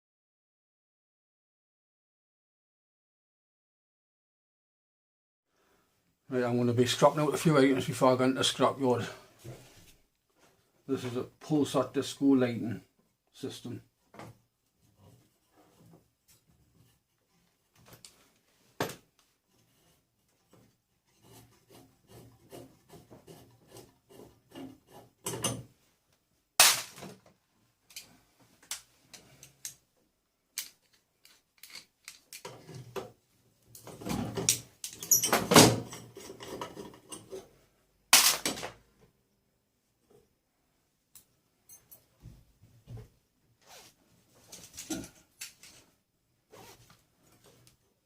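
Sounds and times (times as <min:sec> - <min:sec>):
parts clattering together: 0:26.6 - 0:27.3, 0:27.9 - 0:29.8, 0:30.5 - 0:37.5, 0:38.1 - 0:38.8, 0:44.5 - 0:45.9.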